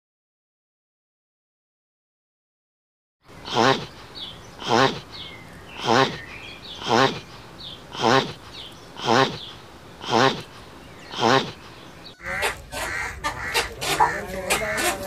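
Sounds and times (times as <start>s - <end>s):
mix of animal calls: 3.3s - 15.0s
wavering animal call: 3.4s - 15.0s.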